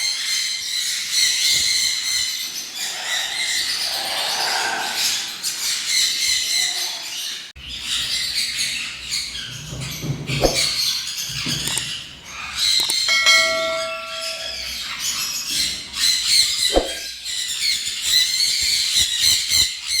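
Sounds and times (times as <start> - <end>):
cage birds chirping: 0.0 - 20.0
steady tone: 13.1 - 14.7.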